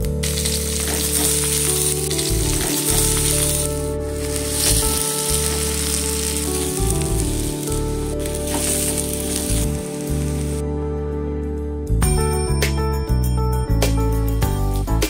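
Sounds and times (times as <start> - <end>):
food sizzling in a pot: 0.0 - 10.6
wooden spatula stirring: 0.0 - 10.6
background music: 0.0 - 15.0.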